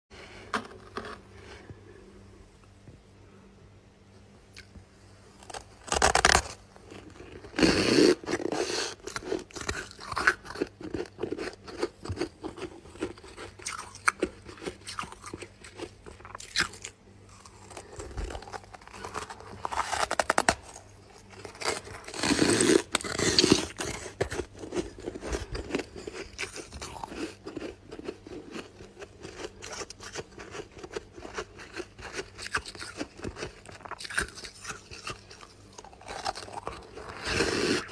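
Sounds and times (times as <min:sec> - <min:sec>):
crunching bites of frost: 0:05.4 - 0:28.6
crackly chewing: 0:05.4 - 0:37.9.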